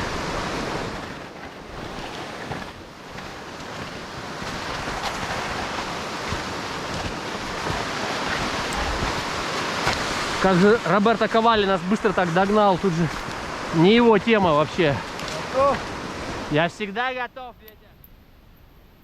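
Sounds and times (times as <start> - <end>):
wind on microphone: 0.0 - 10.6
hiss of snow: 1.7 - 16.6.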